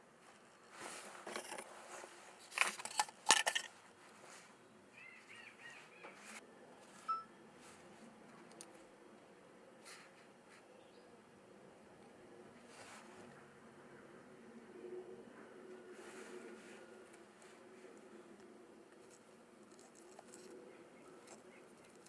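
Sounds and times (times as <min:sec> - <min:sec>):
small parts clicking and clattering: 0:02.4 - 0:03.8
bird chirp: 0:04.9 - 0:06.4.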